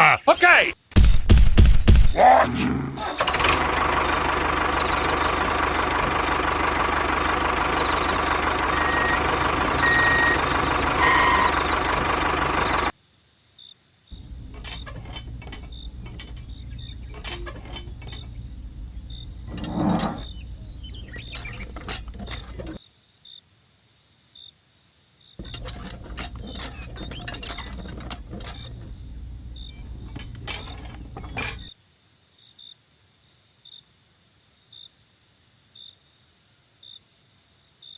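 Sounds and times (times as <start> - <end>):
engine running: 3.0 - 12.9, 14.2 - 22.8, 25.4 - 31.7
mechanical hum: 14.2 - 22.8, 25.4 - 31.7.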